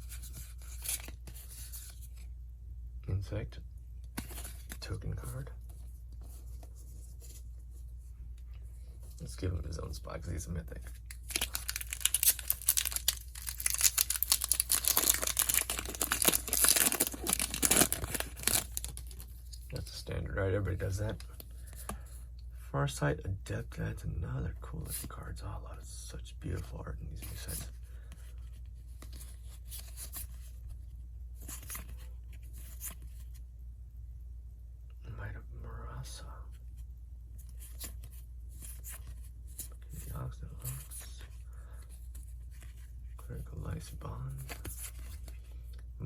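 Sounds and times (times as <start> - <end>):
cards and packaging crinkling: 0.0 - 2.3, 10.9 - 19.9, 44.3 - 45.8.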